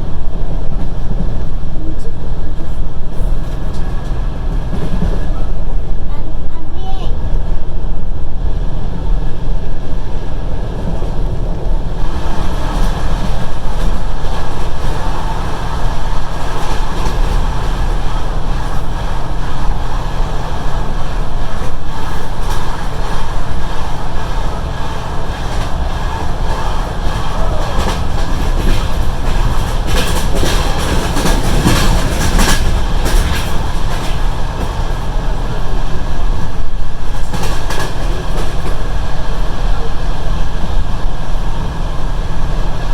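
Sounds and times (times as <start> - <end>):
train rumbling: 0.0 - 42.9
wheels clattering over rail joints: 9.2 - 42.8.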